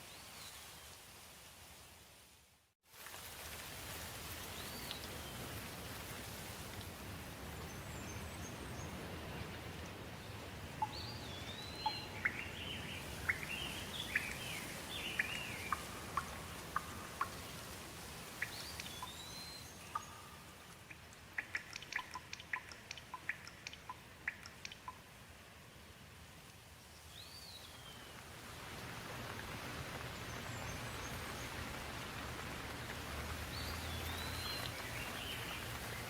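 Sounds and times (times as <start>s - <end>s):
steady rain: 0.0s - 36.0s
small birds chirping: 9.8s - 17.4s, 18.3s - 25.0s, 32.7s - 36.0s.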